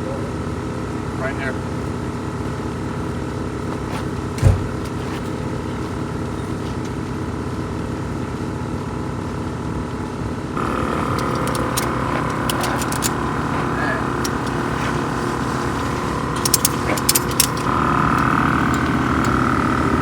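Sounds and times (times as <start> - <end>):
engine running steadily: 0.0 - 20.0
thump: 4.4 - 4.8.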